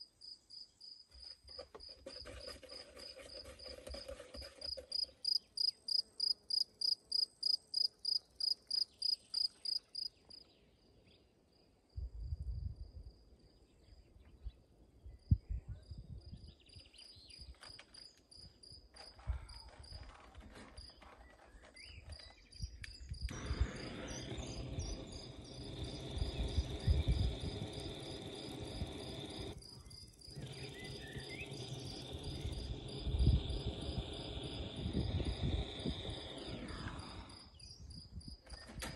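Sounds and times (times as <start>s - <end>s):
insect chirping: 4.7s - 10.2s, 23.4s - 38.4s
steady noise and low rumbling: 23.3s - 38.1s.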